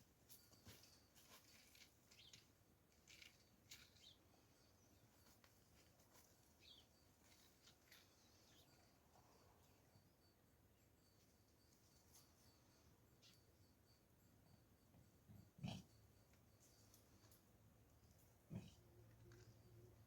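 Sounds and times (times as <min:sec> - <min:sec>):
faint high bird chirps: 0:00.3 - 0:02.5, 0:03.1 - 0:05.4, 0:06.2 - 0:10.3, 0:10.9 - 0:14.0.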